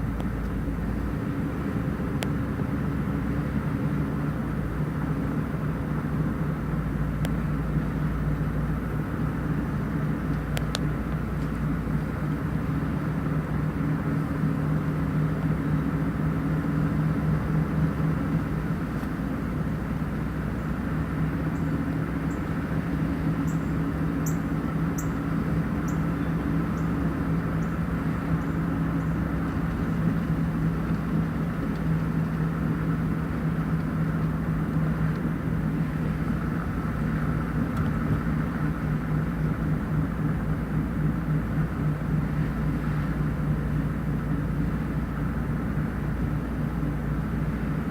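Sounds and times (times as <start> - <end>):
engine humming: 0.0 - 47.9
faint high ticks: 10.3 - 11.6.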